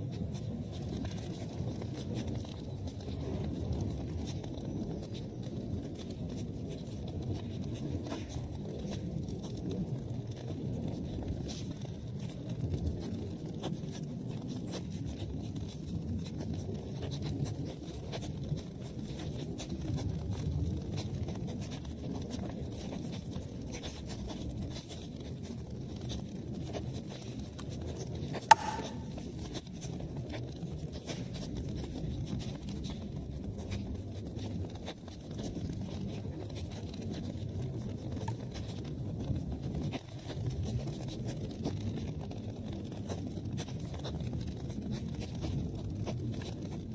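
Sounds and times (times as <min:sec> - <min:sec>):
low rumble of flames: 0:00.0 - 0:28.0
sharp loud pop: 0:28.5 - 0:29.1.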